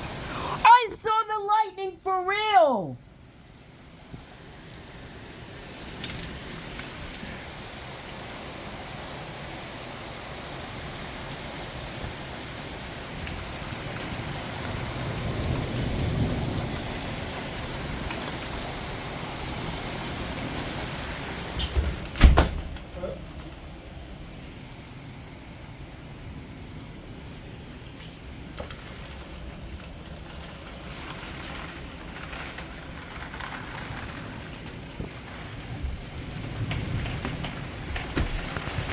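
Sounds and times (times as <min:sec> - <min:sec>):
heavy rain falling: 0:00.0 - 0:38.9
thunder rumbling: 0:12.8 - 0:38.9.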